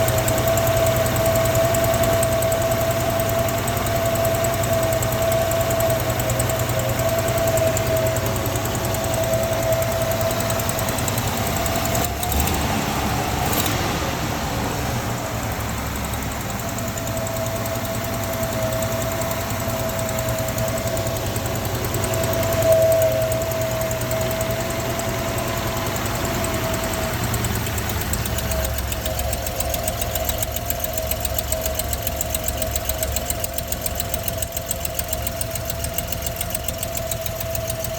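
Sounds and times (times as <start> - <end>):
car engine idling: 0.0 - 37.9
steady high tone: 15.3 - 32.0.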